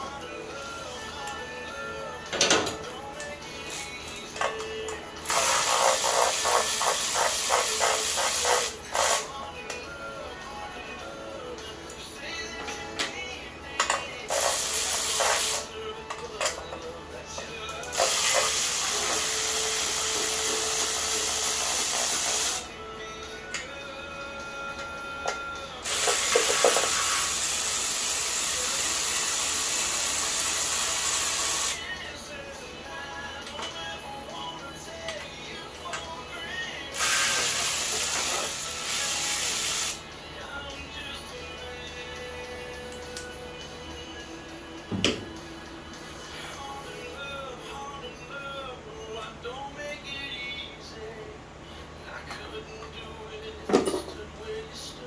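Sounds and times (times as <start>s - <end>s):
music: 0.0s - 55.0s
power tool hissing and pulsing: 5.3s - 9.3s, 14.3s - 15.7s, 17.9s - 22.7s, 25.8s - 31.8s, 37.0s - 40.0s.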